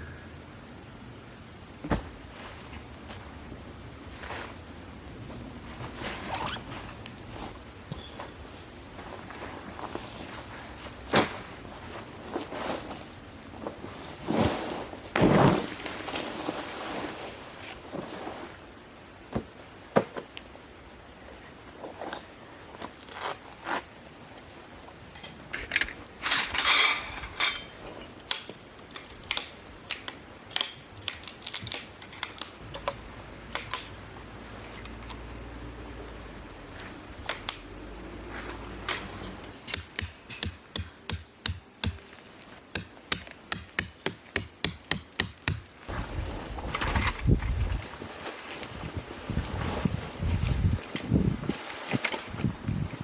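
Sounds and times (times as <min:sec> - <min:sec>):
rustling: 0:01.8 - 0:18.6
hammer strikes: 0:39.0 - 0:42.0, 0:42.8 - 0:45.7.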